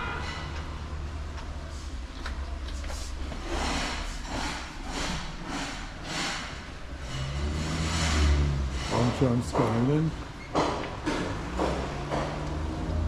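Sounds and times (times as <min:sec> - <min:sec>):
footsteps walking: 0:00.5 - 0:03.6.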